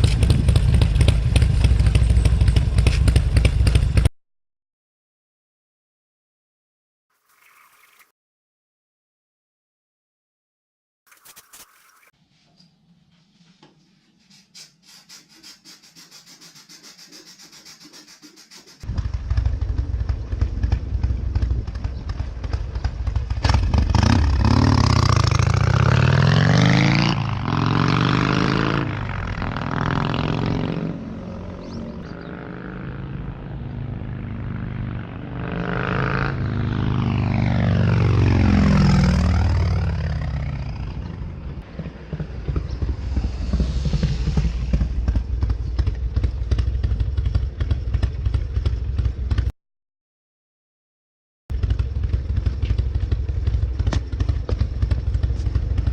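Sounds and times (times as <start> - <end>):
motorcycle engine revving: 0.0 - 4.1, 18.8 - 49.5, 51.5 - 55.9.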